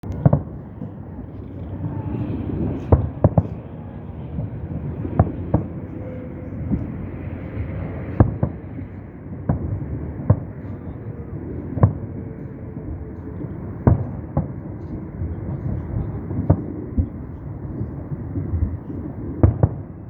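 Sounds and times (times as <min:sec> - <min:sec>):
low rumble: 0:00.0 - 0:19.4
fireworks bangs: 0:00.0 - 0:20.0.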